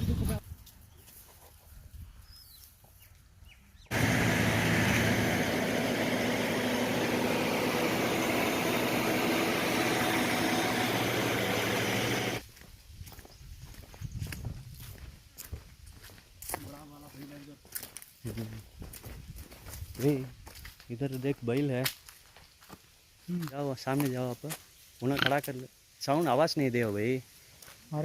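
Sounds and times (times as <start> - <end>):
vehicle engine running: 3.9 - 12.4
faint outdoor sounds: 12.2 - 28.0.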